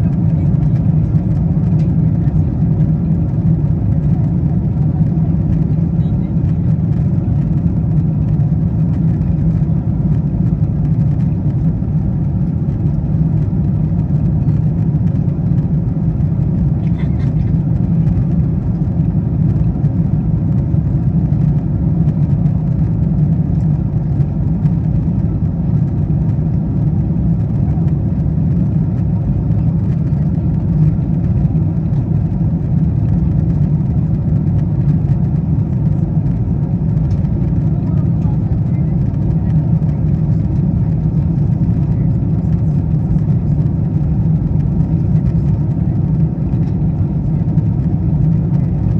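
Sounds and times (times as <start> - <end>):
airplane cabin engine rumble: 0.0 - 48.9.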